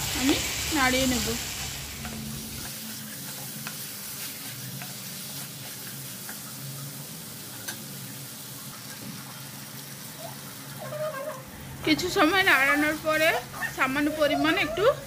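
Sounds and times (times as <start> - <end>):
food sizzling in oil: 0.0 - 15.0
spatula tapping and scraping pan: 2.0 - 6.5.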